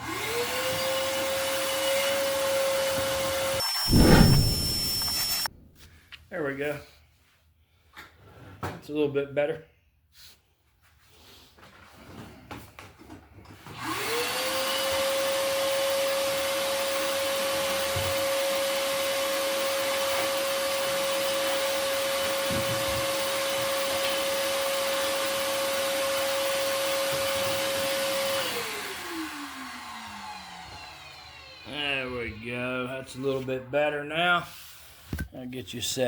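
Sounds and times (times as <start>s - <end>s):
shop vacuum running: 0.0s - 5.5s, 13.7s - 33.5s.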